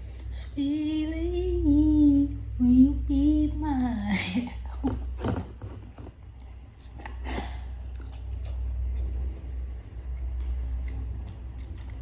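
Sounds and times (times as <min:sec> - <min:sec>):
steady low hum: 0:00.0 - 0:12.0
crunchy chewing: 0:06.0 - 0:12.0.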